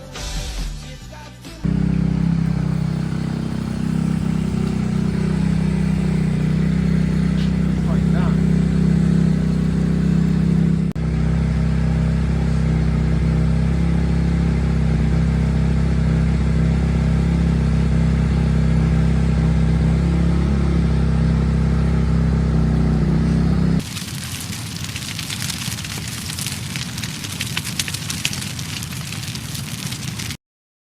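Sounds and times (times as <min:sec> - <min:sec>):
dirt bike engine idling: 0:01.6 - 0:23.8
turkey frying in hot oil: 0:02.4 - 0:10.6, 0:23.8 - 0:30.4.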